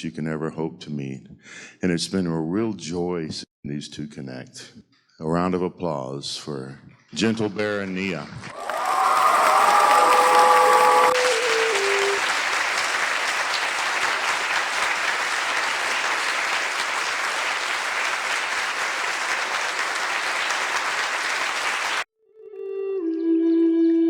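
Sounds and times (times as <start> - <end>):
audience applauding: 8.5 - 22.1
held music notes: 11.1 - 12.3.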